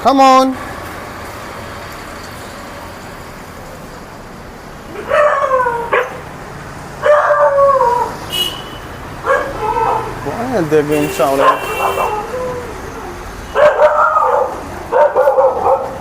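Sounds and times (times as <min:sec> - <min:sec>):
dogs barking: 0:04.9 - 0:06.4, 0:07.0 - 0:08.2, 0:09.2 - 0:10.2, 0:11.2 - 0:16.0.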